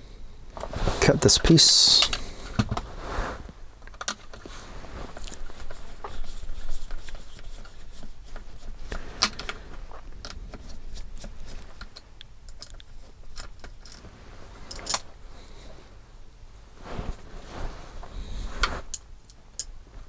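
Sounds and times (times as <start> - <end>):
plastic parts and tools clicking: 11.6 - 14.0.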